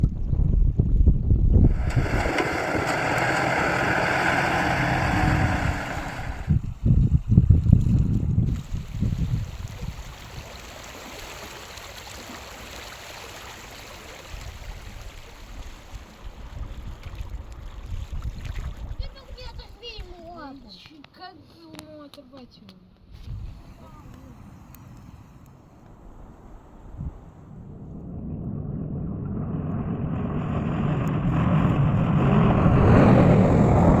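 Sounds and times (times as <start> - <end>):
low rumbling: 0.0 - 9.2, 23.2 - 34.0
truck engine running: 1.7 - 6.6
water rushing: 1.7 - 6.6, 8.5 - 19.6, 30.2 - 34.0.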